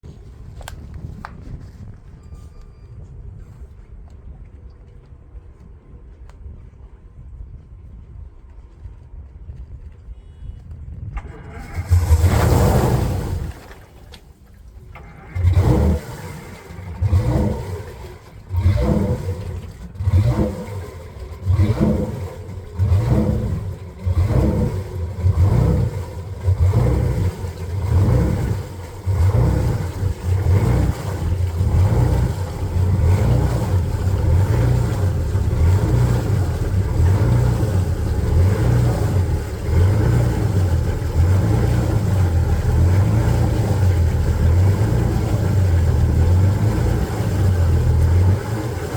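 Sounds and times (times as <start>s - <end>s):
diesel engine running rough: 11.1s - 14.1s, 14.9s - 48.9s.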